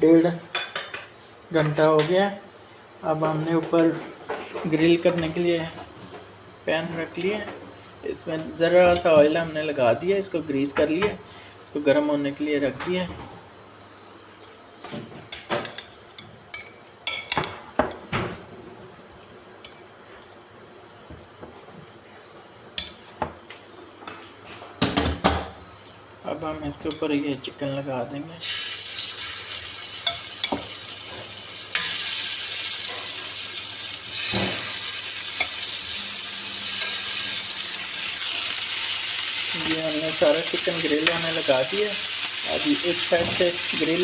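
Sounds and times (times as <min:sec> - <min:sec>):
room hum: 0:00.0 - 0:44.0
chicken sizzling in a frying pan: 0:28.4 - 0:44.0.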